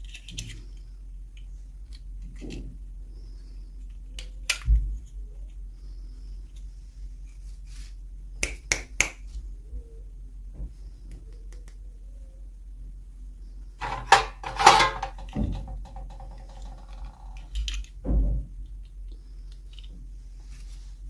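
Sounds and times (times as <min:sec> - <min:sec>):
plastic pieces clicking: 0:00.0 - 0:02.7, 0:03.8 - 0:04.8, 0:14.6 - 0:18.0, 0:18.6 - 0:20.0.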